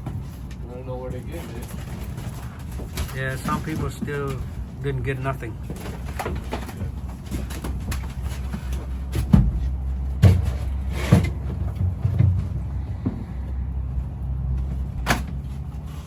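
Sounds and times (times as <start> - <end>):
knocks and thumps: 1.4 - 4.8, 5.6 - 15.8
steady low rumble: 6.8 - 16.0.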